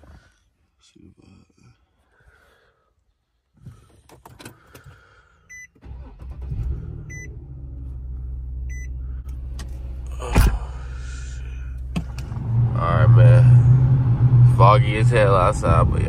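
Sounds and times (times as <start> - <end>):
car engine starting and idling: 3.8 - 16.0.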